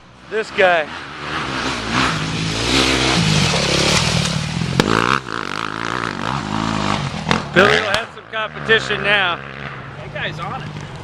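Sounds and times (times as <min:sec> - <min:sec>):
dirt bike engine revving: 0:00.3 - 0:10.9
sharp crack: 0:01.6 - 0:08.2.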